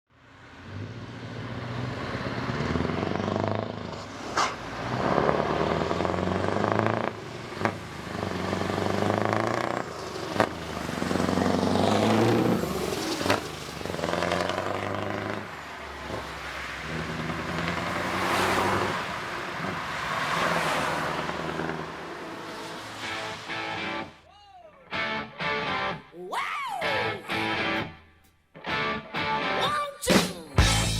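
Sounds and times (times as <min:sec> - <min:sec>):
truck engine accelerating: 0:00.3 - 0:24.2
sharp crack at gear changes: 0:03.5 - 0:15.5.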